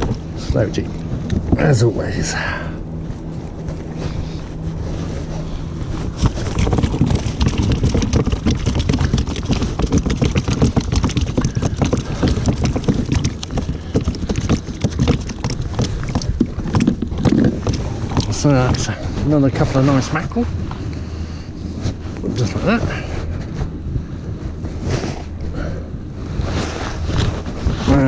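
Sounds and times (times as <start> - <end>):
knocks and crackles: 0.0 - 1.8, 5.0 - 20.8
low rumble: 0.0 - 28.0
wind buffeting microphone: 0.0 - 28.0.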